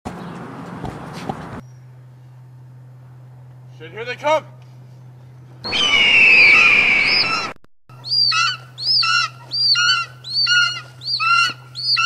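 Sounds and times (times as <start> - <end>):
rush of noise: 5.7 - 7.6
high bird cries: 5.7 - 12.0.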